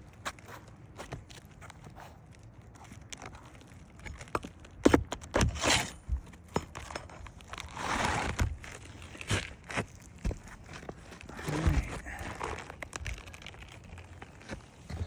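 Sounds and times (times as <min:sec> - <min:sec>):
scraping and rustling: 0:05.4 - 0:15.0.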